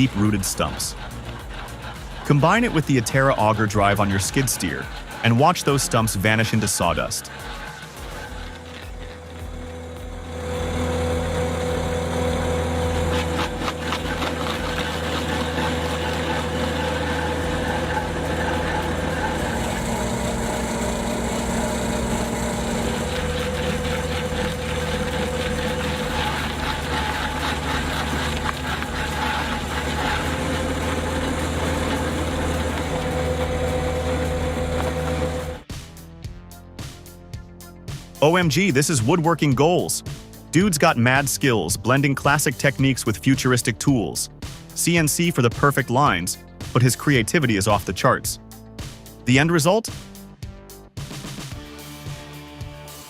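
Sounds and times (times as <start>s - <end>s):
skid steer engine humming: 0.0s - 35.7s.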